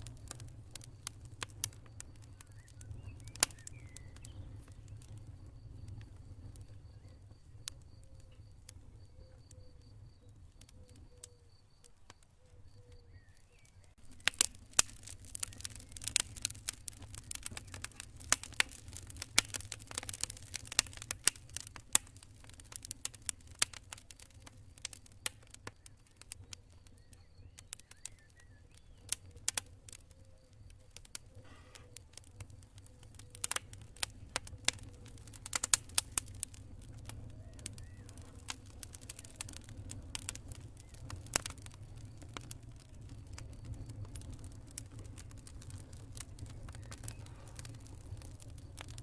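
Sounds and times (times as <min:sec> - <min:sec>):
cricket trilling: 0:00.0 - 0:18.1
campfire crackling and popping: 0:00.0 - 0:49.0.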